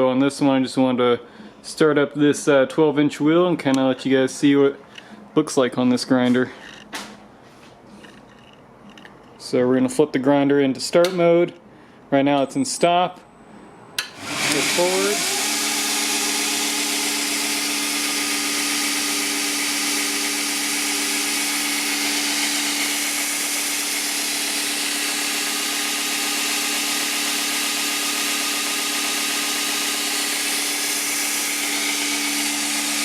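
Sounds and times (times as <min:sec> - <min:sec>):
belt grinder whirring: 0:14.0 - 0:33.0.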